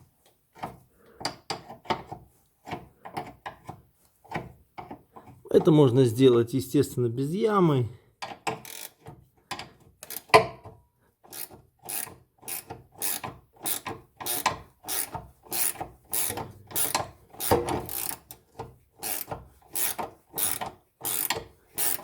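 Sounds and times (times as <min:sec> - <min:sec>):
wrench rasping on bolt: 0:08.3 - 0:10.3, 0:11.3 - 0:18.3, 0:19.0 - 0:22.0.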